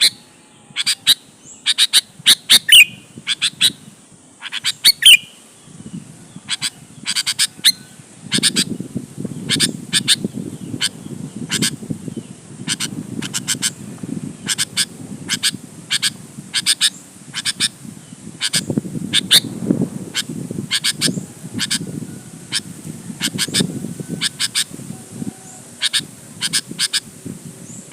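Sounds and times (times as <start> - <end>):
bird calling sharp notes: 0.0 - 3.8, 4.4 - 5.4, 6.4 - 8.8, 14.4 - 17.8, 18.4 - 21.9, 22.5 - 24.7, 25.8 - 27.1.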